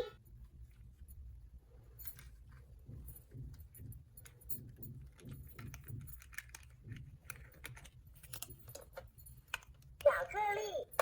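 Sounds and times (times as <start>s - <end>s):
plastic toy pieces clicking: 5.1s - 10.3s.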